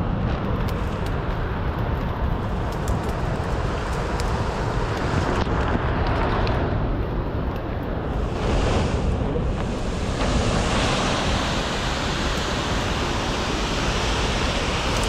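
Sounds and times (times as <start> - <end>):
wind on microphone: 0.0 - 15.0
waterfall roaring: 8.2 - 15.0.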